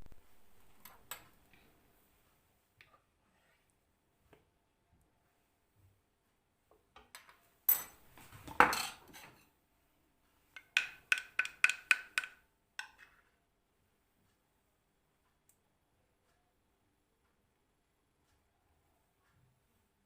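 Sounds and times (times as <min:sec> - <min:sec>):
kitchenware scraping: 0:07.7 - 0:09.6.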